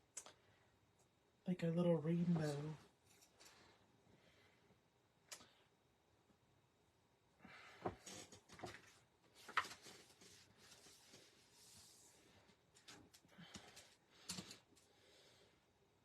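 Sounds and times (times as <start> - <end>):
paper rustling: 8.5 - 12.1.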